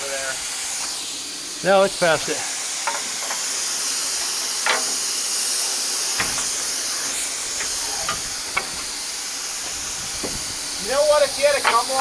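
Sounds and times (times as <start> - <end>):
compressed air hissing: 0.0 - 12.0
light knocks: 6.2 - 6.6.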